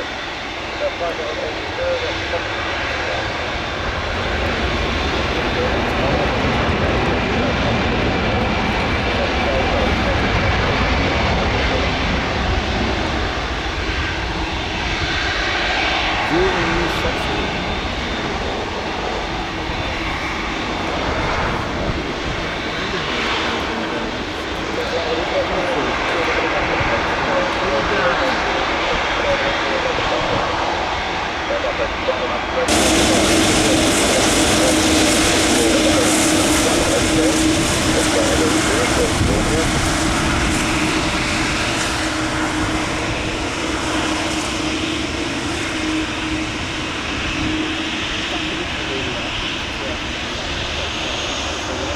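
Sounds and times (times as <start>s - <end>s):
jet engines running: 0.0s - 51.9s.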